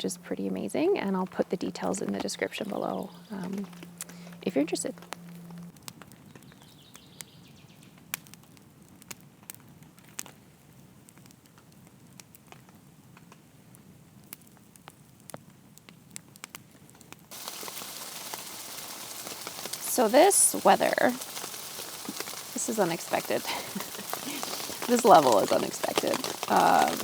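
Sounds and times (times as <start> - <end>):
rain hiss: 0.0 - 5.8, 17.3 - 27.0
campfire crackling and popping: 0.0 - 27.0.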